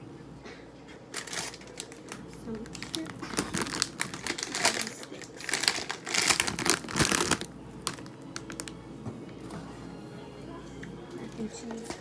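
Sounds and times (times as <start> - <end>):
plastic bags crinkling: 1.1 - 8.8.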